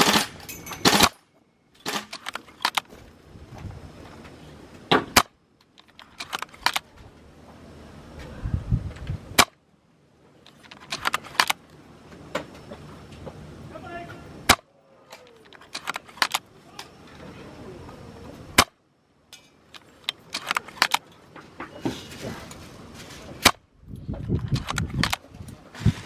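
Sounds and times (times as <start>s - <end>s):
airsoft rifle shot: 0.0s - 1.2s
rifle bolt clicks: 15.4s - 16.5s, 19.8s - 21.1s, 24.4s - 25.2s.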